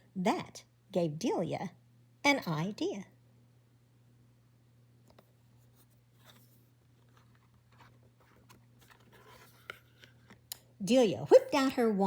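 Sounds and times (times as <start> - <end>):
low steady hum: 0.0 - 12.0
paper rustling: 5.2 - 10.4.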